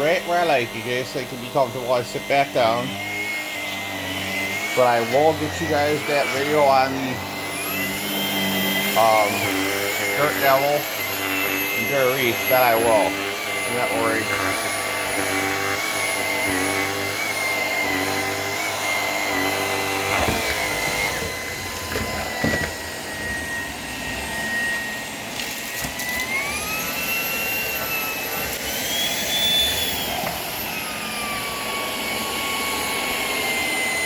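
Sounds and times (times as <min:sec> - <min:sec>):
vacuum cleaner high whine: 0:00.0 - 0:34.0
vacuum cleaner knocks: 0:20.0 - 0:23.8.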